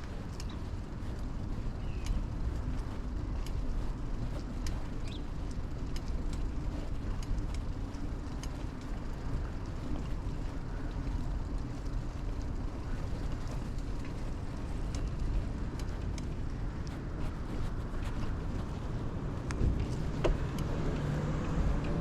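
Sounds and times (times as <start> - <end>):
bike clicks and rattles: 0.0 - 22.0
tyre and wind rumble: 0.0 - 22.0.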